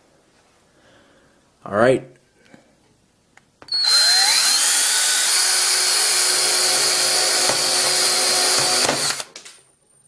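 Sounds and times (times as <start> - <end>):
drill bit grinding into phone: 3.7 - 9.4.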